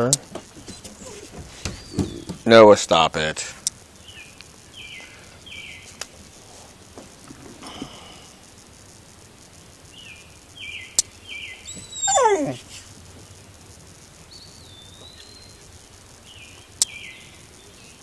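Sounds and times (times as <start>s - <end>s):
dog whining: 0.5s - 2.4s, 11.6s - 12.9s.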